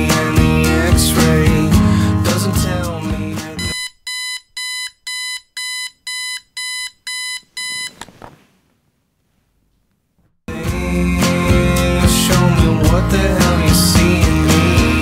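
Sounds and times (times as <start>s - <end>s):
music: 0.0s - 3.7s, 10.5s - 15.0s
alarm clock beeping: 3.6s - 7.9s
faint soft noise: 7.6s - 10.4s.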